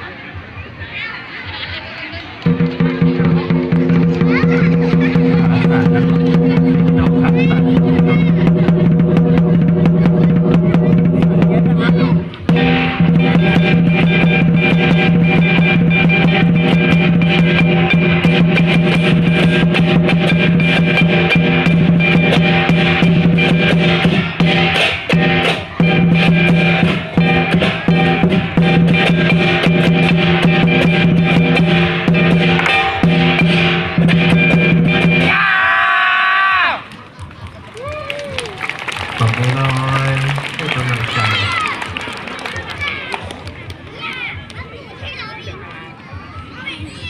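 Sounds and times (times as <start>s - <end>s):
fast drum and cymbal strikes: 2.5s - 35.5s.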